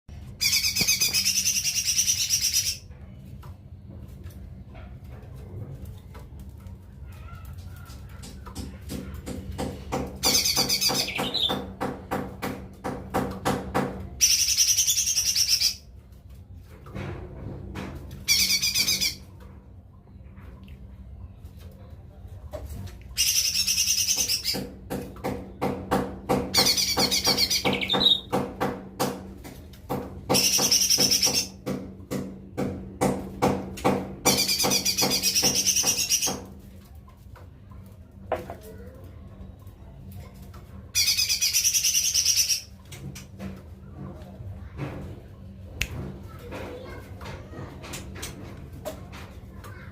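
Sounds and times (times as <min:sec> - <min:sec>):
bird calling and twittering: 0:00.3 - 0:02.9, 0:10.2 - 0:11.7, 0:14.2 - 0:15.9, 0:18.3 - 0:19.2, 0:23.1 - 0:24.7, 0:26.5 - 0:28.4, 0:30.3 - 0:31.6, 0:34.2 - 0:36.4, 0:40.9 - 0:42.8
bird trilling song: 0:00.4 - 0:02.8, 0:10.2 - 0:11.7, 0:26.6 - 0:28.4.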